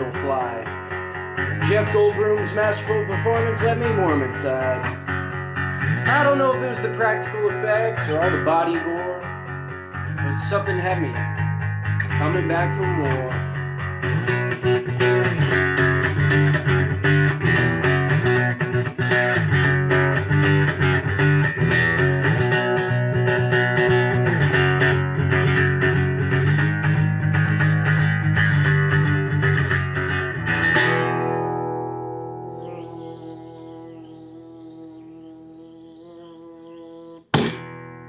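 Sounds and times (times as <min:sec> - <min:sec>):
bass line: 0:00.0 - 0:09.5
strummed guitar: 0:00.0 - 0:38.0.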